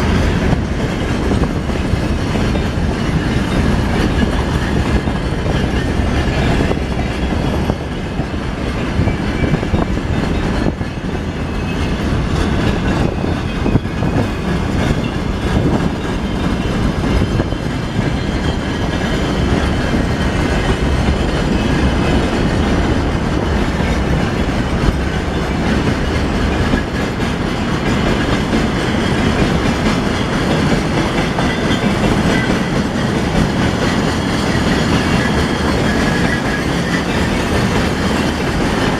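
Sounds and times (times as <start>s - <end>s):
train wheels clacking over rail joints: 0.0s - 38.9s.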